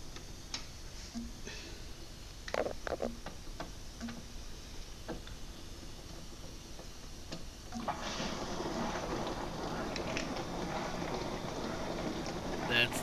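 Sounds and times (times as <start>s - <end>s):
dishwasher filling with water: 6.4s - 13.0s.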